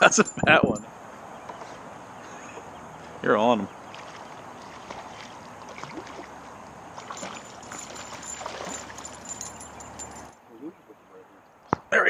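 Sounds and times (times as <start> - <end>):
wind: 0.0 - 12.0
water rushing: 2.6 - 10.4.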